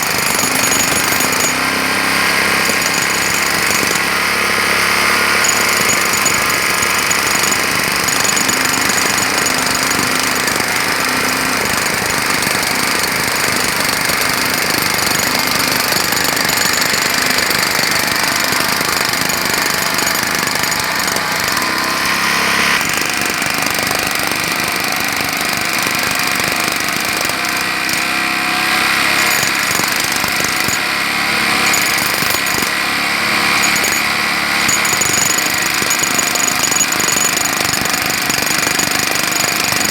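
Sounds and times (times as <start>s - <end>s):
jackhammer hammering: 0.0s - 39.9s.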